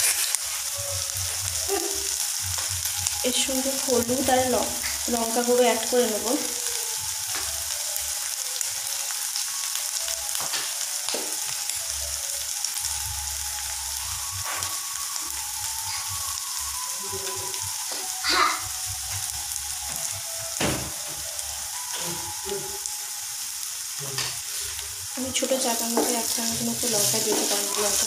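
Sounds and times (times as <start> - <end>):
food sizzling in hot oil: 0.0 - 28.0
wooden spatula scraping pan: 26.0 - 28.0.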